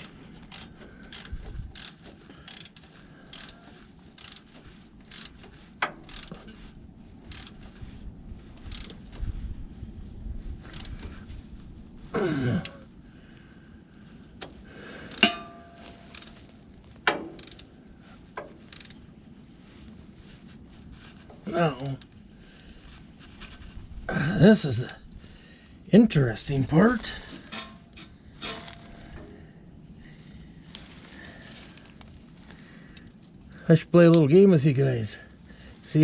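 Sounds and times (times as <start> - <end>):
ratchet pawl clicking: 0.0 - 6.6, 7.3 - 7.6, 8.6 - 9.0, 10.6 - 11.0, 15.1 - 16.4, 17.3 - 17.7, 18.4 - 19.0
metallic clinks: 15.1 - 16.4.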